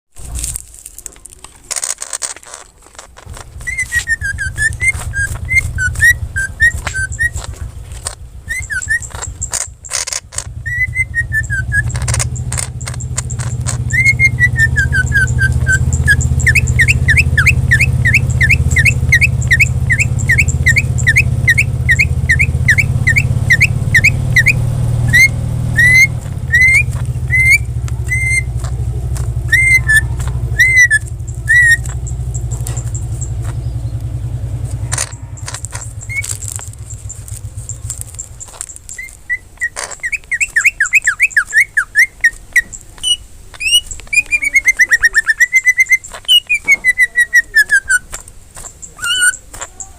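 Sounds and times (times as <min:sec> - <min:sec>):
flurry of clicks: 0:00.2 - 0:49.9
steady low hum: 0:02.6 - 0:44.7
bird singing whistled notes: 0:03.2 - 0:49.9.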